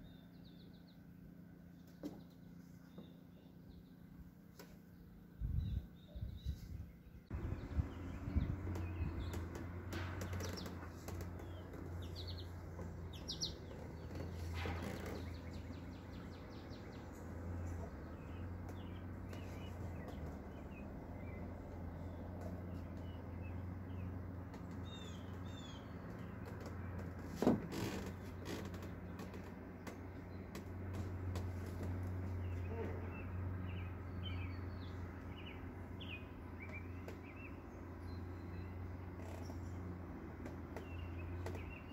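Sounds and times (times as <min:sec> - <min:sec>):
outdoor air rumble and hiss: 0:00.0 - 0:41.9
small birds chirping: 0:00.0 - 0:41.9
sharp knocks: 0:09.3 - 0:12.0.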